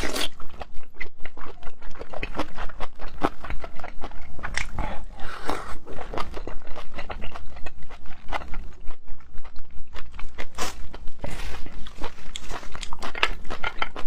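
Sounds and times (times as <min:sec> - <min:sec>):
wet chewing and biting: 0:00.0 - 0:14.0.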